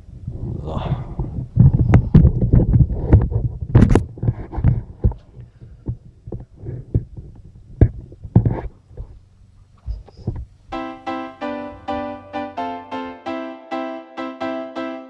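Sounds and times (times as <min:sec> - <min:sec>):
microphone handling thumps: 0:01.1 - 0:09.2, 0:09.8 - 0:10.5.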